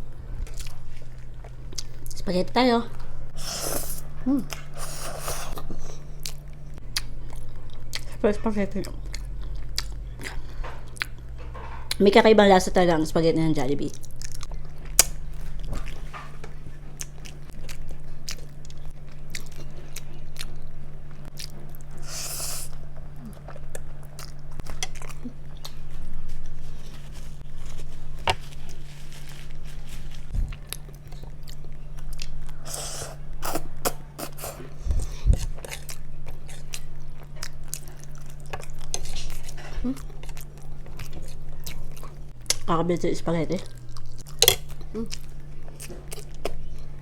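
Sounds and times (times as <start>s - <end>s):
steady low hum: 0.0s - 47.0s
chewing spaghetti: 3.7s - 12.1s, 16.8s - 22.1s, 30.4s - 42.7s.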